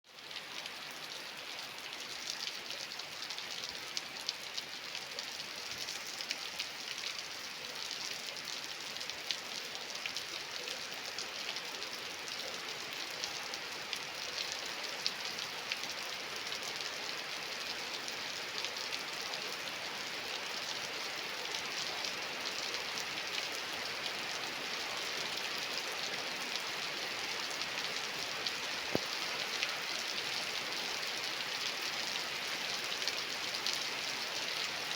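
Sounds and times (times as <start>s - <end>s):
raindrops ticking on a surface: 0.1s - 34.9s
steady rain hiss: 0.2s - 34.9s.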